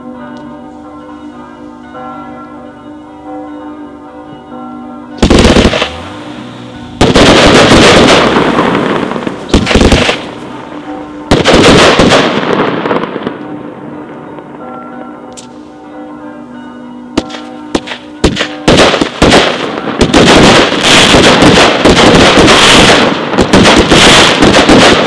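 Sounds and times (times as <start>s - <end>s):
bells ringing: 0.0s - 25.0s
firework volleys and crackle: 5.2s - 6.3s, 7.0s - 10.5s, 11.3s - 13.3s, 17.2s - 25.0s.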